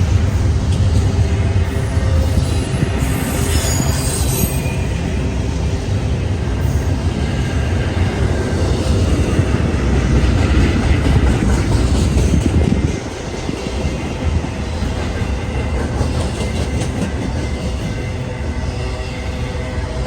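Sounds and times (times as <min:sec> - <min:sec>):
train wheels rumbling on rail: 0:00.0 - 0:20.0
high wheel squeal: 0:01.6 - 0:05.3.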